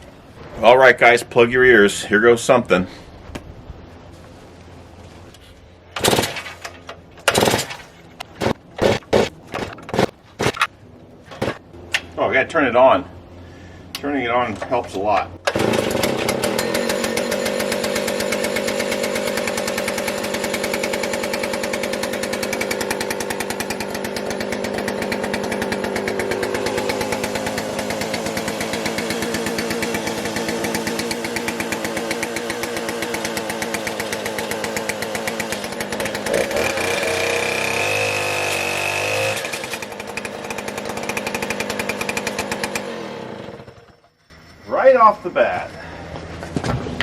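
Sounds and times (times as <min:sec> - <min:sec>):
chainsaw running at high revs: 0:15.5 - 0:44.0
thin high whine: 0:43.8 - 0:46.3.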